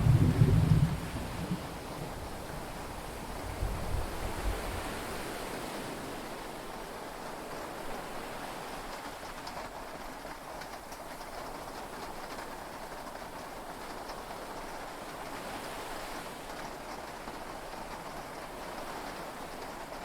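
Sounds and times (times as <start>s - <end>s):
low thunder rumble: 0.0s - 4.2s
sea noise: 0.0s - 6.5s
steady rain: 0.0s - 20.0s.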